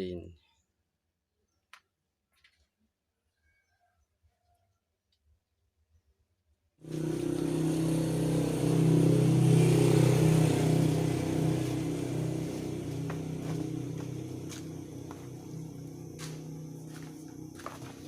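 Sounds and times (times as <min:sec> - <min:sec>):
motor humming and hissing: 0:06.8 - 0:18.0.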